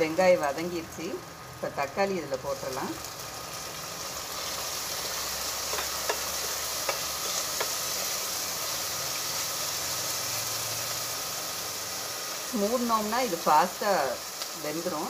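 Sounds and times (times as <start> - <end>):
onions sizzling in hot oil: 0.0 - 15.0
spatula knocking against pan: 5.7 - 7.8.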